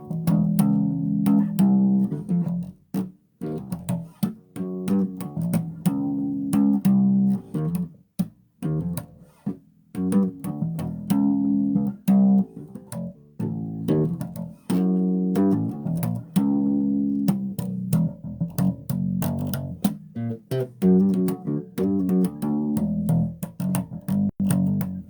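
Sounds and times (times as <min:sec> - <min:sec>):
bass guitar plucked notes: 0:00.0 - 0:25.0.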